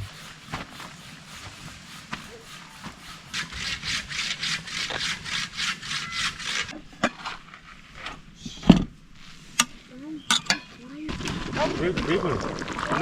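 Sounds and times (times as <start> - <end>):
sawing on wood: 0.0 - 6.8.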